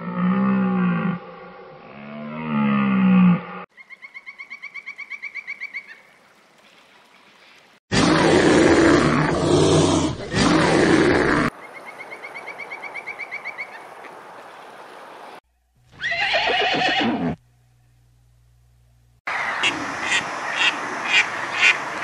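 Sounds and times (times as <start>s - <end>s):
splashing water: 5.9s - 7.8s
horse whinny: 16.0s - 17.4s.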